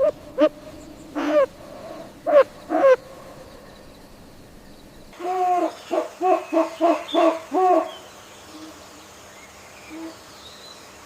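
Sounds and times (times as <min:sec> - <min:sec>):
owl hooting: 0:00.0 - 0:03.2, 0:05.2 - 0:08.8.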